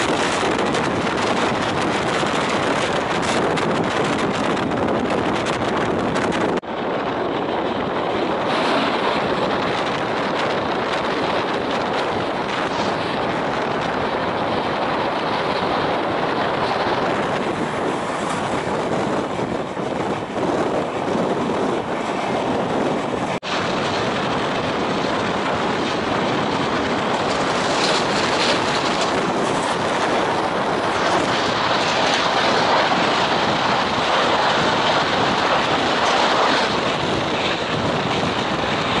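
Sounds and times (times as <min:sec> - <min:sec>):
passing train coaches: 0:00.0 - 0:39.0
rushing wind: 0:00.0 - 0:39.0
train wheels rumbling on rail: 0:00.0 - 0:39.0.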